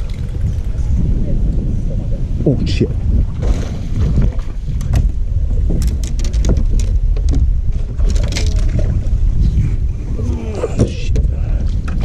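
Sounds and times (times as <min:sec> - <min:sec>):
water and wind rumble: 0:00.0 - 0:12.0
sharp clicks and knocks: 0:05.7 - 0:08.8.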